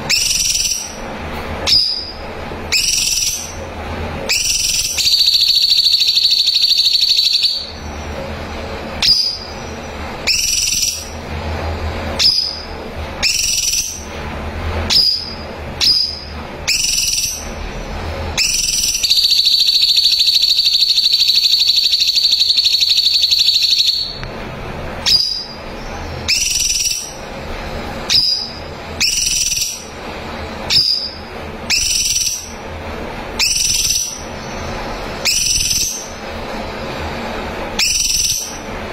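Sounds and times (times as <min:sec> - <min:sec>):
whistled rising notes: 0:04.3 - 0:07.9, 0:18.4 - 0:24.2, 0:28.1 - 0:29.9, 0:33.4 - 0:36.2, 0:37.8 - 0:38.6.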